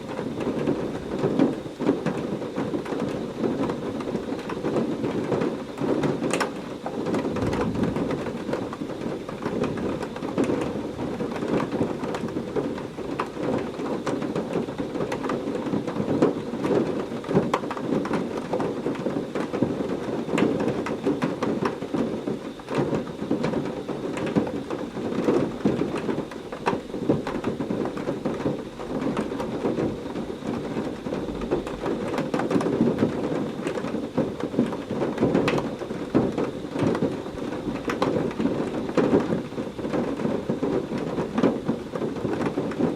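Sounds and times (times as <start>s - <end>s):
heavy rain pouring: 0.0s - 42.9s
rumble of thunder: 7.0s - 19.7s, 27.0s - 42.9s.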